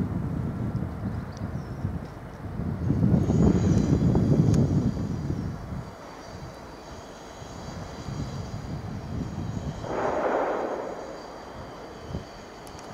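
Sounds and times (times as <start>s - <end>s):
diesel train rumble: 3.2s - 12.9s
rushing sound: 9.8s - 12.6s.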